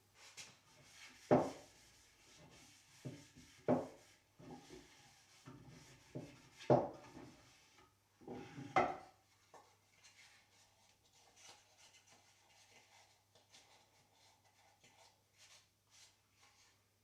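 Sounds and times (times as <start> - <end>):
faint rubbing and scraping: 0.2 - 16.8.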